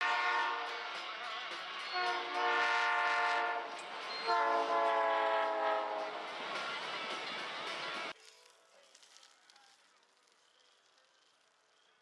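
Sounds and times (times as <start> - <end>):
train horn blasts: 0.0 - 0.9, 1.9 - 6.3.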